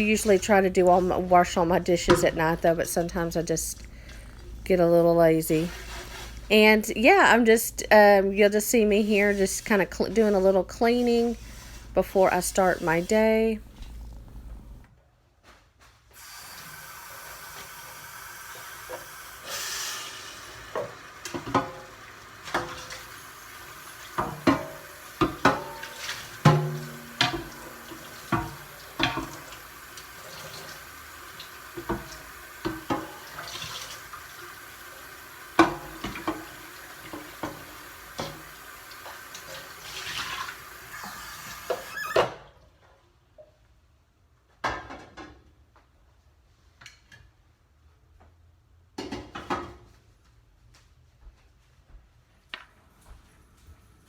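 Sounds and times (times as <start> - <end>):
pan clanking against sink: 2.0 - 2.5, 20.8 - 21.9, 24.2 - 29.5
tap running into sink: 24.0 - 30.8, 31.7 - 34.2, 35.5 - 42.3.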